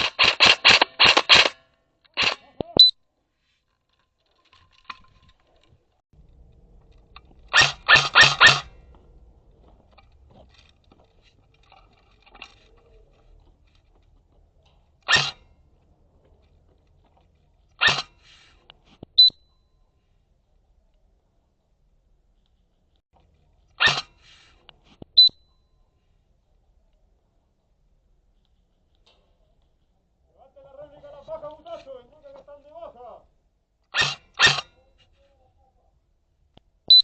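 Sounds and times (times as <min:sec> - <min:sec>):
airsoft gun shots: 0:00.0 - 0:01.6, 0:07.5 - 0:08.8, 0:33.9 - 0:34.7.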